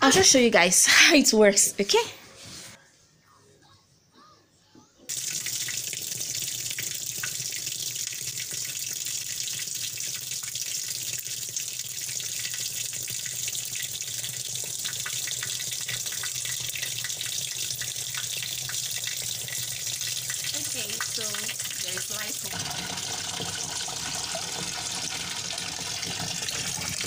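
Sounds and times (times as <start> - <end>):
water pouring into washing machine tub: 5.1 - 27.0.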